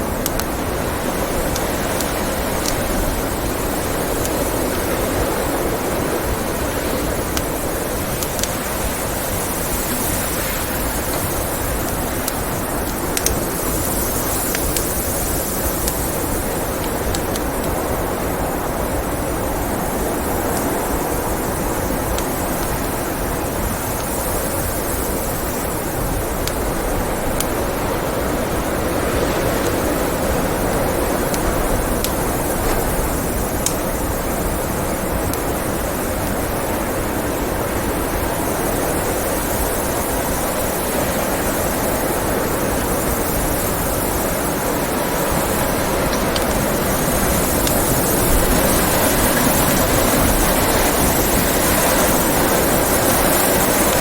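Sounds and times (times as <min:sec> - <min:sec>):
blizzard wind roaring: 0:00.0 - 0:54.0
wood fire crackling: 0:00.0 - 0:54.0.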